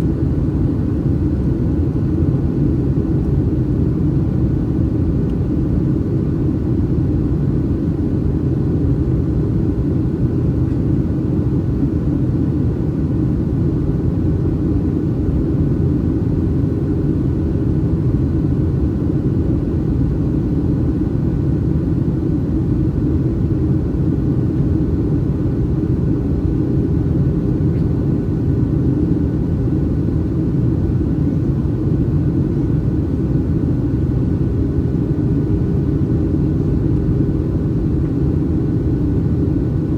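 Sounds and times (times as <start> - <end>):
airplane cabin roar: 0.0 - 39.9
faint steady hum: 0.0 - 39.9.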